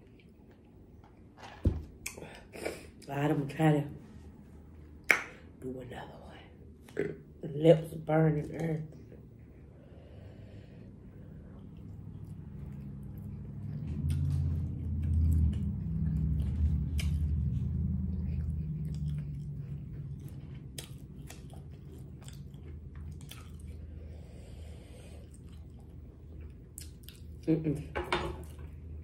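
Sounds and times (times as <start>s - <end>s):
chewing chicken wing: 11.4s - 27.8s.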